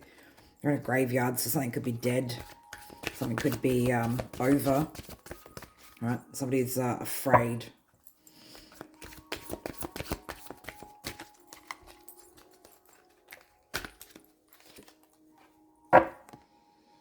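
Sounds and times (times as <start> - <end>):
faint background music: 0.0 - 17.0
cards shuffling: 2.4 - 6.0, 8.5 - 15.2
card knock: 16.0 - 16.4.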